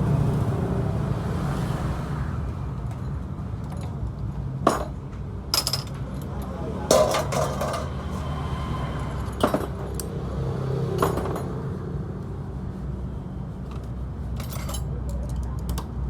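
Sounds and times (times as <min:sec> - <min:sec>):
small metal parts clinking: 0:04.6 - 0:08.0, 0:13.7 - 0:15.9.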